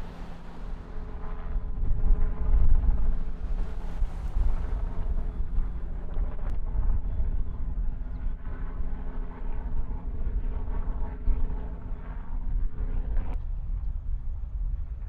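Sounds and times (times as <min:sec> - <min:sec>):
engine humming: 0:00.0 - 0:06.2
wind rumble on microphone: 0:00.0 - 0:15.0.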